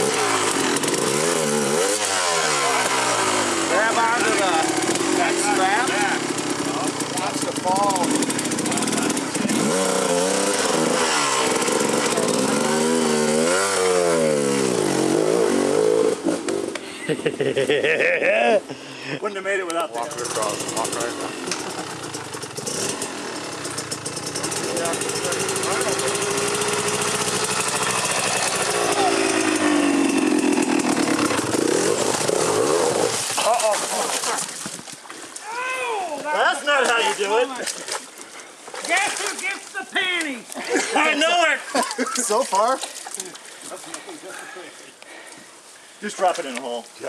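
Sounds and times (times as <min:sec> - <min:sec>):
dirt bike engine revving: 0:00.0 - 0:16.7, 0:19.9 - 0:34.3.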